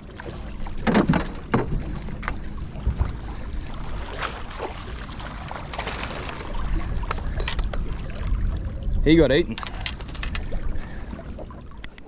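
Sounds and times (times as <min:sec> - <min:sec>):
wind rumbling on microphone: 0:00.0 - 0:12.0
knocks and clatters of gear: 0:00.8 - 0:02.4, 0:05.7 - 0:06.4, 0:07.1 - 0:07.8, 0:09.5 - 0:10.6.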